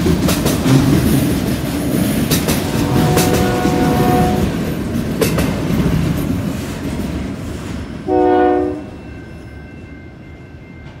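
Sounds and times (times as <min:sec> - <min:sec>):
train wheels on rails: 0:00.0 - 0:11.0
locomotive horn blast: 0:02.6 - 0:04.6, 0:08.1 - 0:09.0.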